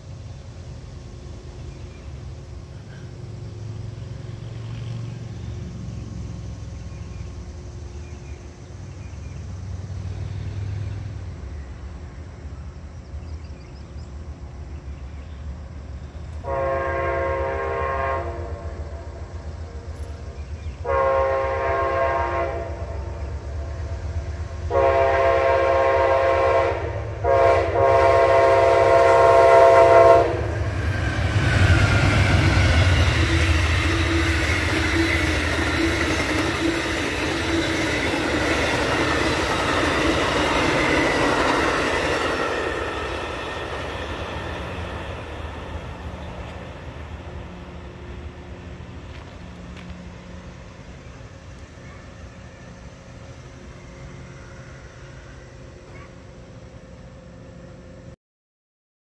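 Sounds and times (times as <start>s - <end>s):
locomotive engine rumbling: 0.0s - 58.1s
train wheels rumbling on rail: 0.0s - 58.1s
locomotive air horn blasts: 16.4s - 19.2s, 20.8s - 23.2s, 24.6s - 30.8s.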